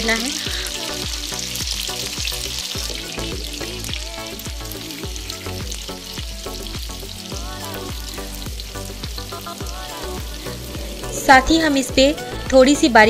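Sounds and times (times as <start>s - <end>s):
background music: 0.0s - 13.0s
food sizzling in frying pan: 0.0s - 13.0s.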